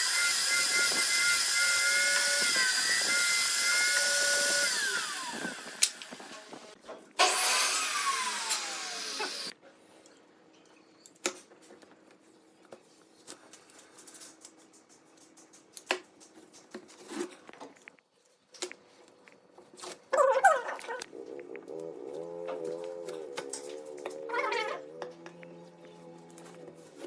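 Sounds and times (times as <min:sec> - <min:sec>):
power tool whining: 0:00.0 - 0:09.5.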